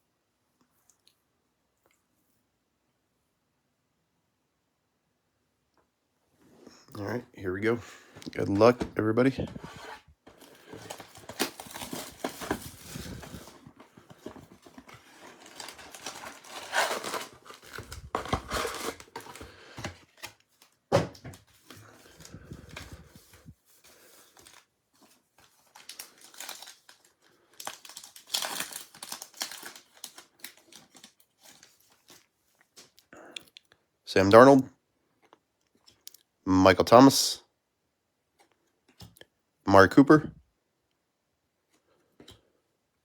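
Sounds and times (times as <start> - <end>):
packaging torn and crinkled: 10.4 - 20.8, 25.4 - 32.3.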